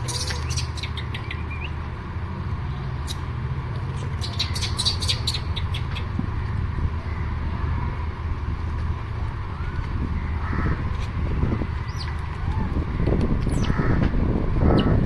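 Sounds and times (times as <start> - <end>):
monkeys squeaking and chattering: 0.0 - 1.7, 4.0 - 6.1, 11.8 - 12.2, 13.5 - 13.8
steady low rumble: 0.0 - 15.0.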